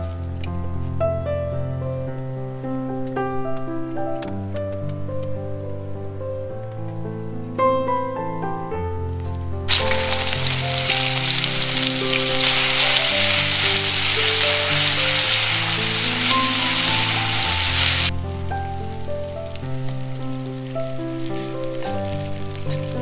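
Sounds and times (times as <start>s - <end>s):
slow background music: 0.0s - 23.0s
food sizzling in a pan: 9.7s - 23.0s.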